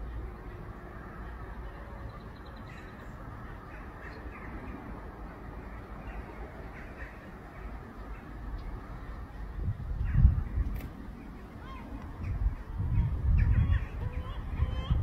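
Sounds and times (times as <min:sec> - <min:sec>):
low outdoor rumble: 0:00.0 - 0:15.0
faint bird calls: 0:01.2 - 0:08.8.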